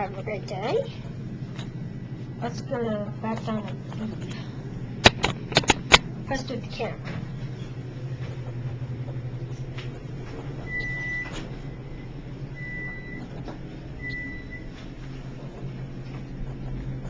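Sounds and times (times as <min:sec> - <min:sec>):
elevator car humming: 0:00.0 - 0:17.0
short electronic beeps: 0:14.0 - 0:14.7.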